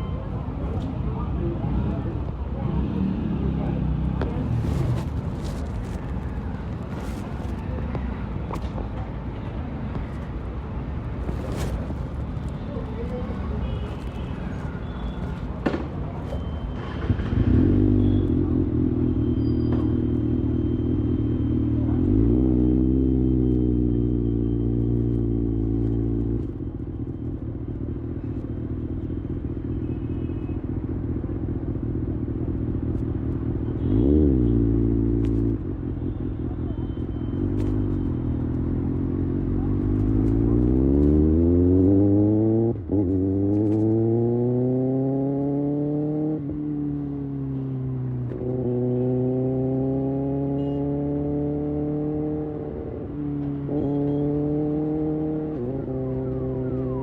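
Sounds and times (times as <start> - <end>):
motorcycle revving and shifting gears: 1.6 - 6.0, 16.8 - 27.1, 31.8 - 35.9, 37.3 - 57.0.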